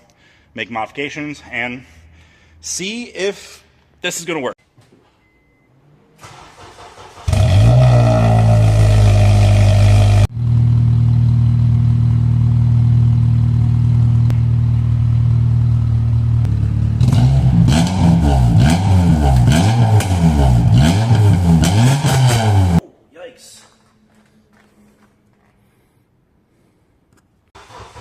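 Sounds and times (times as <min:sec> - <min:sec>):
loud car engine idling and revving: 0:07.1 - 0:22.8.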